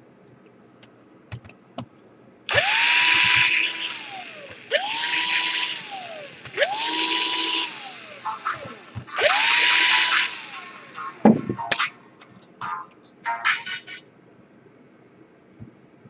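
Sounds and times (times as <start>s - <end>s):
electric screwdriver spinning: 2.5s - 11.2s.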